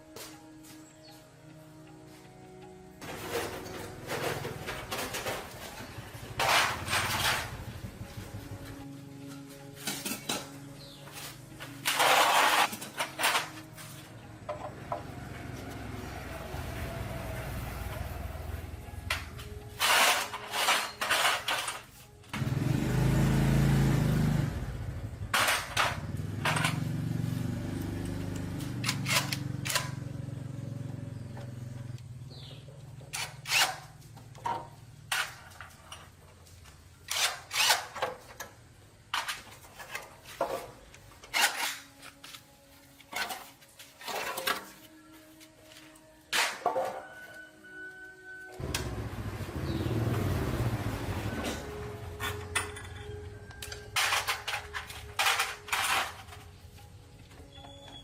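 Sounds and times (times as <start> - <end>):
hand tools clanking on metal: 3.0 - 7.9, 8.6 - 15.1, 18.9 - 22.2, 25.2 - 27.2, 43.0 - 45.0, 51.4 - 58.0.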